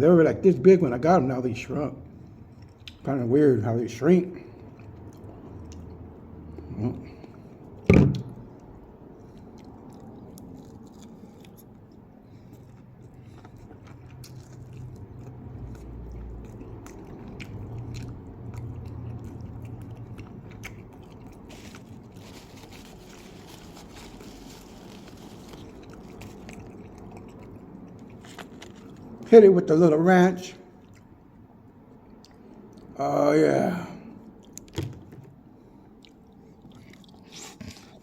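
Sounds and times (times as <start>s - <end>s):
crunchy chewing: 8.5s - 29.3s, 35.8s - 38.0s.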